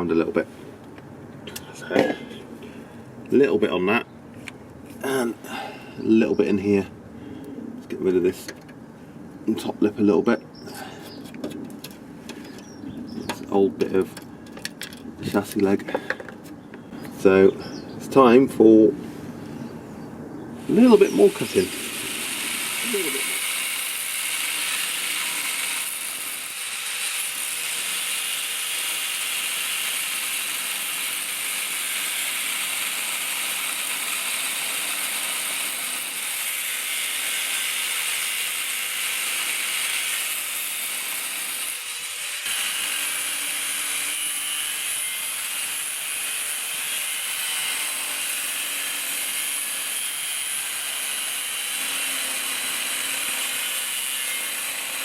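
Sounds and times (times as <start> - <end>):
power tool cutting steel: 20.6 - 55.0.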